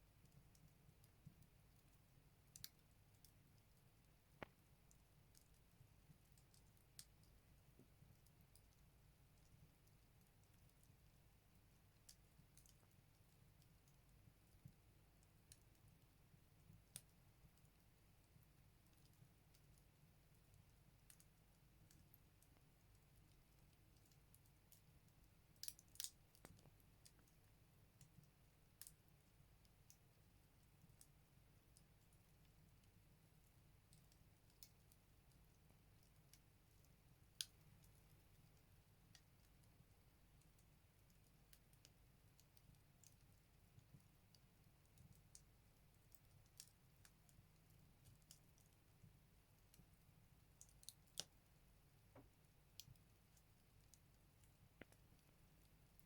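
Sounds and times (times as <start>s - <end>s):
firewood crackling in stove: 0.0s - 56.0s
firewood crackling and popping: 16.6s - 29.2s, 49.6s - 56.0s.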